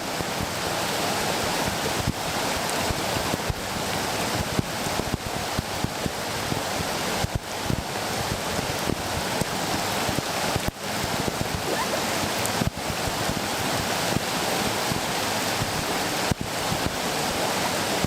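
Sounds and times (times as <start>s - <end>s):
river rapids roaring: 0.0s - 18.0s.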